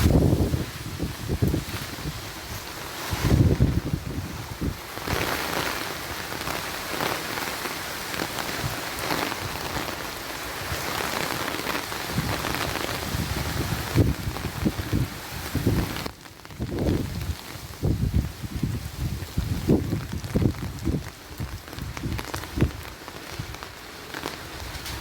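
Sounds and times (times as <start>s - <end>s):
low wind rumble: 0.0s - 6.5s, 10.6s - 23.6s
heavy rain: 0.0s - 25.0s.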